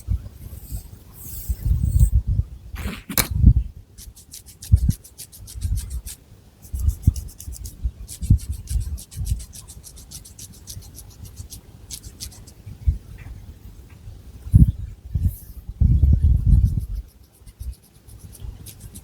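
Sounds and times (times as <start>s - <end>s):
fingernails scratching through hair: 0.4s - 2.2s, 2.8s - 3.4s, 16.2s - 19.0s.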